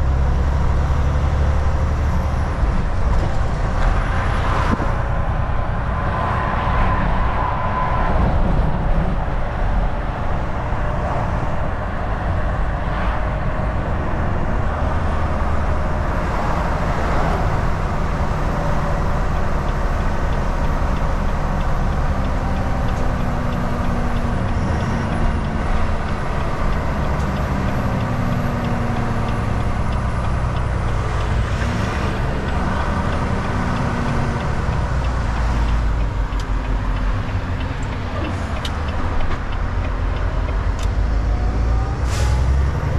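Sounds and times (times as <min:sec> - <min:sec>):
road and tyre noise: 0:00.0 - 0:42.9
truck engine drone: 0:00.0 - 0:42.9.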